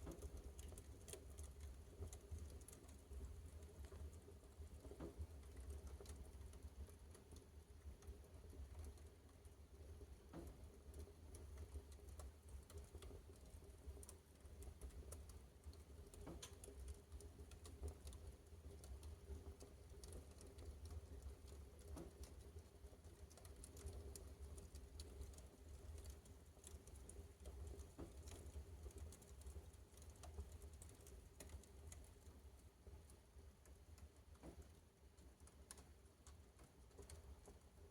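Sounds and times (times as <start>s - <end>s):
fire crackling and popping: 15.7s - 18.0s.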